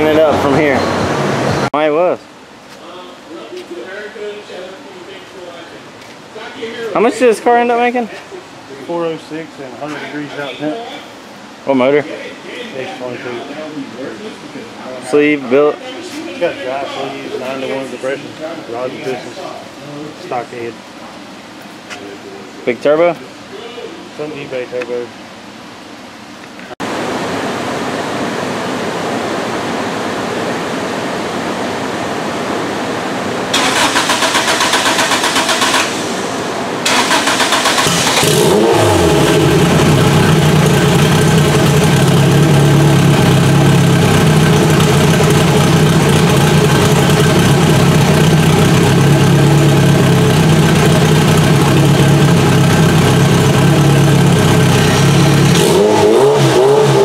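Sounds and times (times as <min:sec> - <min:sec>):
car engine roaring: 0:00.0 - 0:01.7, 0:33.5 - 0:57.0.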